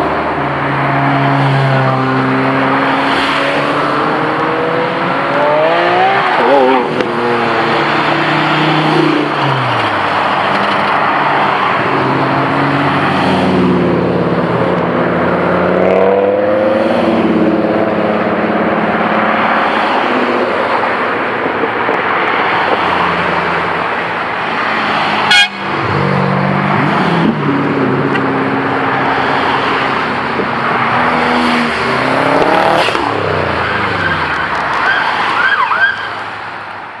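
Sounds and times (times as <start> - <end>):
car engine revving: 0.0 - 20.6, 22.0 - 35.3.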